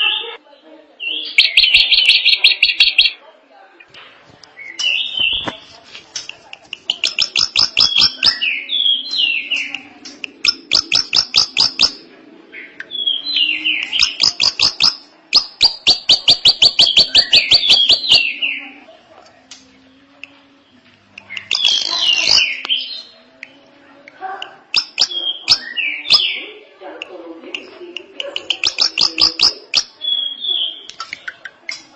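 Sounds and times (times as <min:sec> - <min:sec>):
drongo clicking notes: 0:09.6 - 0:12.0.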